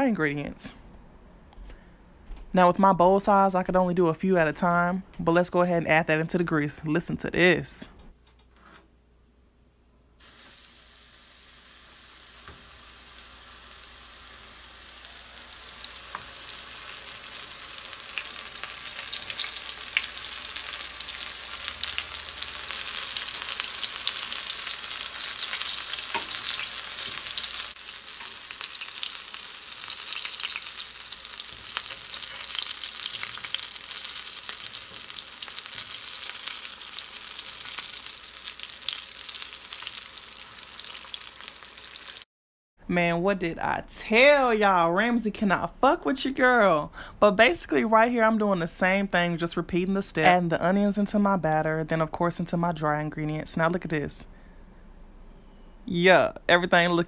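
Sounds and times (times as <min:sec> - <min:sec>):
onion rings sizzling in oil: 0:10.2 - 0:42.3.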